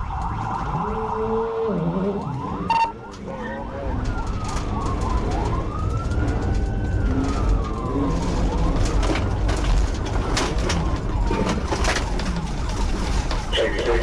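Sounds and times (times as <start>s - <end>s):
police siren wailing: 0.0s - 14.0s
road and wind rumble: 0.0s - 14.0s.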